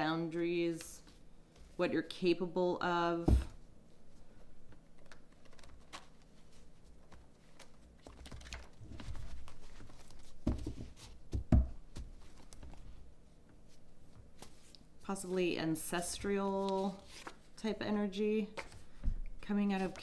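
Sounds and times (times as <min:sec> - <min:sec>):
cards rustling and clicking: 0:04.7 - 0:10.8.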